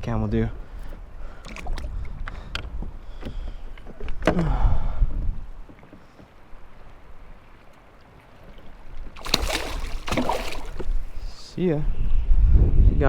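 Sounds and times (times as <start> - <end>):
water splashing against kayak: 5.8 - 11.5
loud splash: 9.2 - 11.3.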